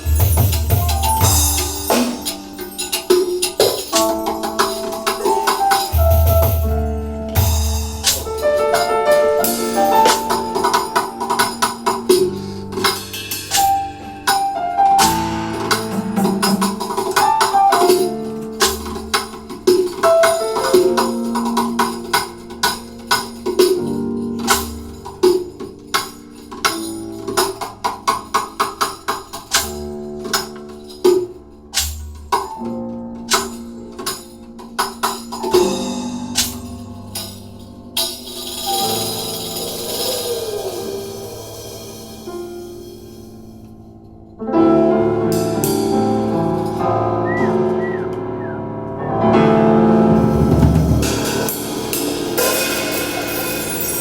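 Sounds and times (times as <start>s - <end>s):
tambourine and percussion rhythm: 0.0s - 43.6s, 45.3s - 48.0s, 50.2s - 54.0s.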